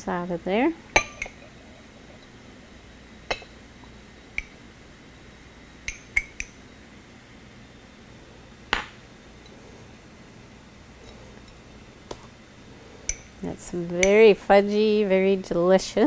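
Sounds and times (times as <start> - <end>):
mug clinking against plate: 1.0 - 1.6, 3.3 - 3.6, 5.9 - 6.6, 13.0 - 13.4.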